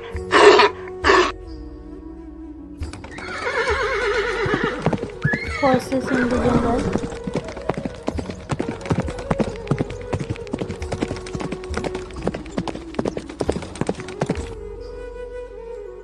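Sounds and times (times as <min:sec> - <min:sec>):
horse hooves clopping: 0:02.9 - 0:14.6.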